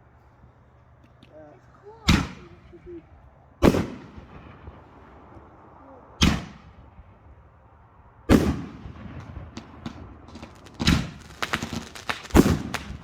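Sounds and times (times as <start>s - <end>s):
firework booms echoing: 3.6s - 4.8s, 6.2s - 6.8s, 8.3s - 13.0s
faint firework crackles: 8.3s - 13.0s.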